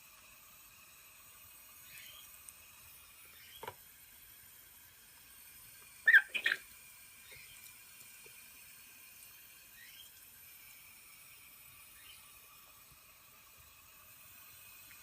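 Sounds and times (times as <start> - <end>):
bird chirping: 6.0 - 6.6.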